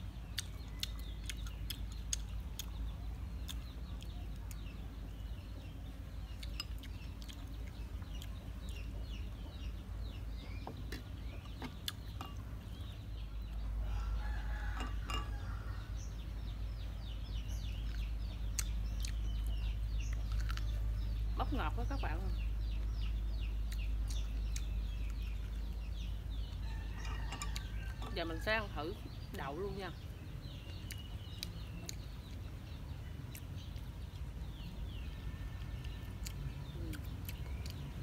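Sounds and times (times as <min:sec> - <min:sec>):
chickens clucking and calling: 0:05.4 - 0:21.9, 0:22.8 - 0:29.6.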